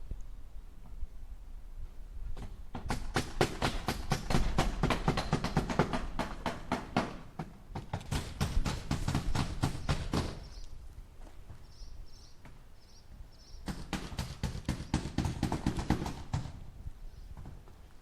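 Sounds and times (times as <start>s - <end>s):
hammer striking nails into wood: 2.4s - 10.4s, 13.7s - 16.6s.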